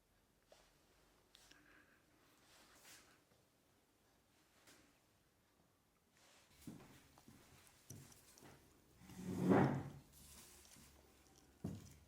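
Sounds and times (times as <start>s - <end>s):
soft rustle: 0.4s - 3.5s, 6.1s - 12.0s.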